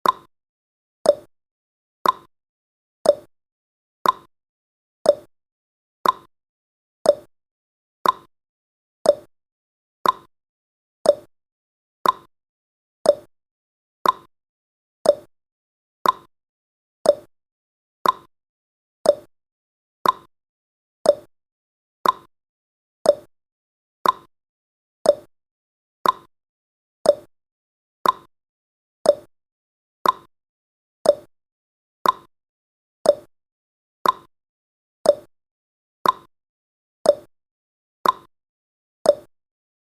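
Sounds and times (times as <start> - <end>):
countdown timer ticking: 5.1 - 5.3, 7.1 - 7.3, 9.1 - 9.3, 11.1 - 11.3, 13.1 - 13.3, 15.1 - 15.3, 17.1 - 17.3, 18.0 - 18.3, 19.1 - 19.3, 21.1 - 21.3, 23.1 - 23.3, 25.1 - 25.3, 26.0 - 26.3, 27.1 - 27.3, 28.0 - 28.3, 29.1 - 29.3, 30.0 - 30.3, 31.1 - 31.3, 32.0 - 32.3, 33.1 - 33.3, 34.0 - 34.3, 35.1 - 35.3, 36.0 - 36.3, 37.1 - 37.3, 38.0 - 38.3, 39.1 - 39.3.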